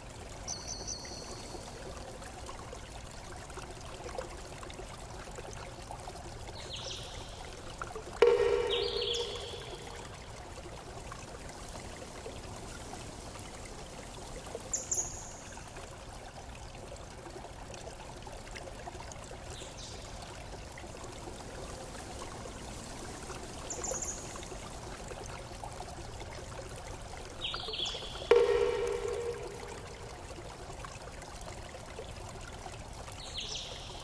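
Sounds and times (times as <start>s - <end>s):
water flowing: 0.0s - 34.0s
high chirps: 8.2s - 10.0s, 28.3s - 30.1s.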